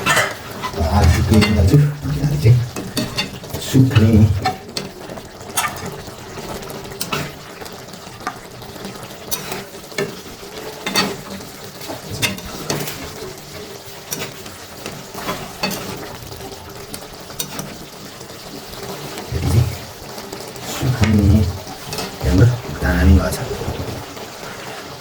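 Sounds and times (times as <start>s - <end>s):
spoon scraping metal pot: 0.0s - 4.6s, 19.3s - 20.0s, 20.6s - 24.0s
food sizzling: 0.0s - 25.0s.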